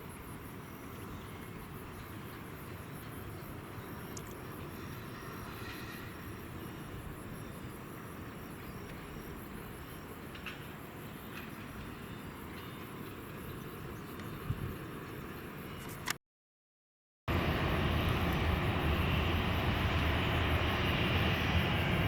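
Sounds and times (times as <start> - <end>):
distant jet engines rumbling: 0.0 - 15.8, 17.3 - 22.0
crickets chirping: 0.0 - 16.0, 17.3 - 22.0.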